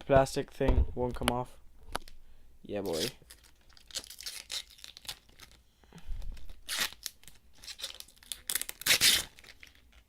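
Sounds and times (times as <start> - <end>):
plastic packaging crinkling: 2.9 - 5.6, 6.2 - 10.0.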